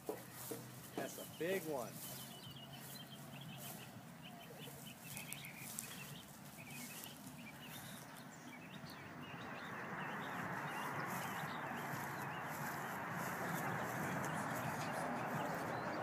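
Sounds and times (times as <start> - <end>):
small birds chirping: 0.0 - 16.0
steady rushing noise: 9.7 - 16.0.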